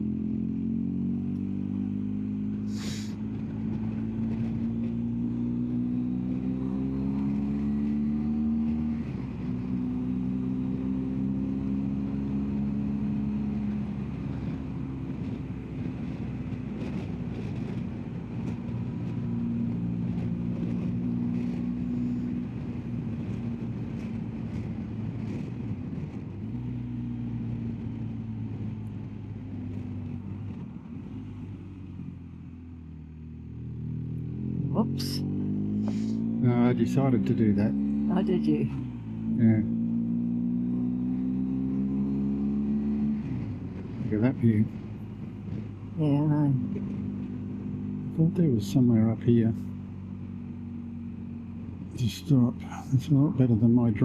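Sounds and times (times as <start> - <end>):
motorcycle engine running: 0.0 - 54.0
road noise: 0.0 - 54.0.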